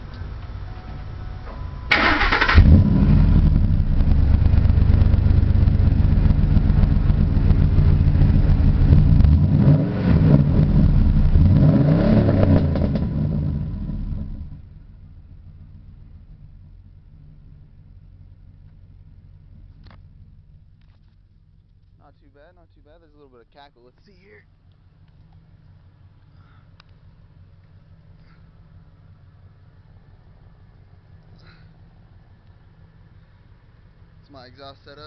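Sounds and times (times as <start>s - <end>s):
engine idling: 0.0s - 11.6s, 12.6s - 35.0s
engine revving: 1.9s - 14.7s
exhaust crackle: 1.9s - 35.0s.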